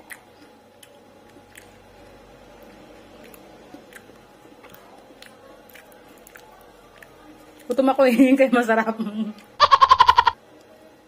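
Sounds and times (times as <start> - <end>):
soft chewing with wet clicks: 0.0 - 8.0, 9.2 - 9.6, 10.5 - 10.8.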